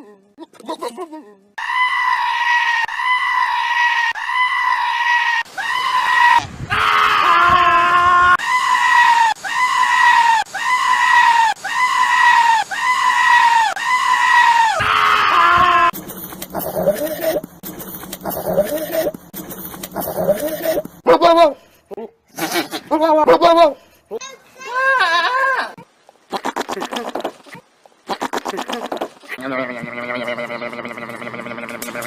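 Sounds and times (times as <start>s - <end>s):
goats bleating shrilly: 1.6s - 16.0s, 24.7s - 27.2s, 28.1s - 32.0s.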